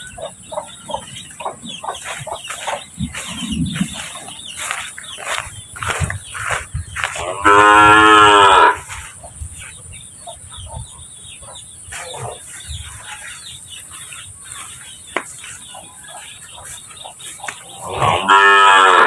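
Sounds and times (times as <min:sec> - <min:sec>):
cow mooing: 0:07.3 - 0:08.8, 0:17.9 - 0:19.0.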